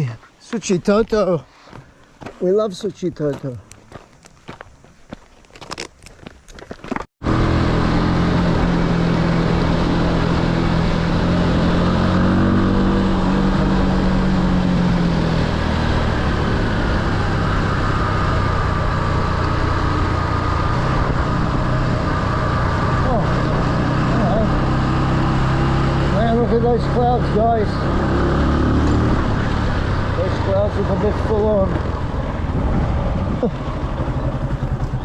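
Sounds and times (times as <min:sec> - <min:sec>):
motorbike engine running: 0:07.2 - 0:28.3, 0:29.8 - 0:35.0
wind rush on microphone: 0:32.2 - 0:33.9.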